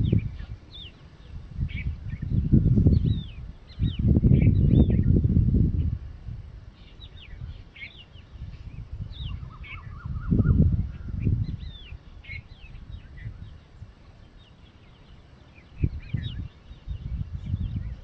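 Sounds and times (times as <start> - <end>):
low rumbling microphone noise: 0.0 - 18.0
small birds chirping: 0.0 - 18.0
bird warbling trill: 6.7 - 18.0.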